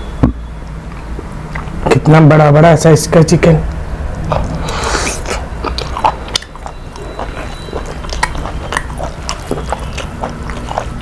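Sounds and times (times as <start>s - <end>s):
chewing and eating: 4.2s - 11.0s.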